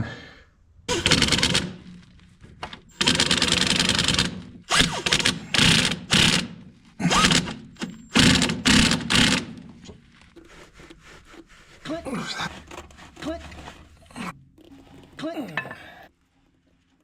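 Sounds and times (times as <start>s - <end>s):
impact wrench hammering bolts: 0.9s - 1.9s, 2.6s - 9.9s.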